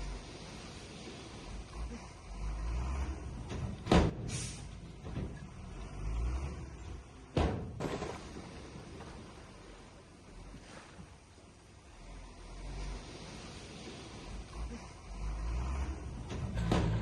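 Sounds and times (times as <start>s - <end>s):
heavy machinery engine rumble: 0.0s - 17.0s
short hiss: 4.3s - 4.7s.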